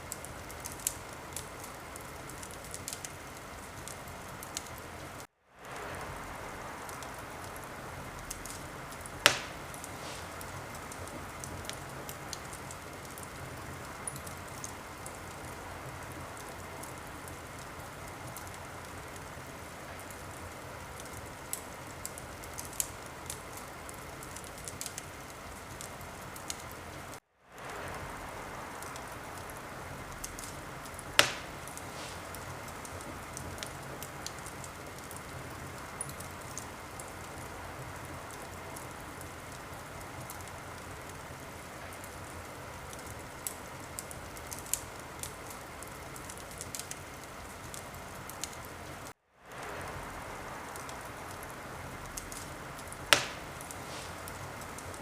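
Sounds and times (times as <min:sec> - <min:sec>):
wood fire crackling: 0:00.0 - 0:55.0
sharp loud fire pops: 0:09.2 - 0:11.2, 0:31.1 - 0:32.5, 0:53.1 - 0:54.3.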